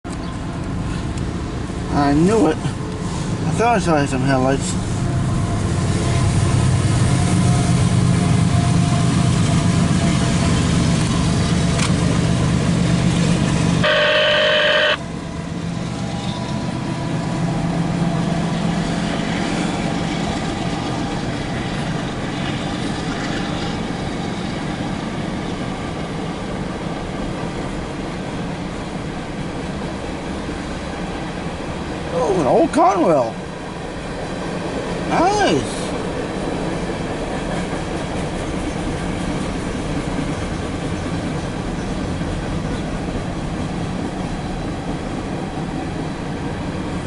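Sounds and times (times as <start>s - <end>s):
diesel locomotive engine rumble: 0.0s - 47.0s
freight cars rolling by: 0.1s - 47.0s
short high tone: 13.8s - 15.0s.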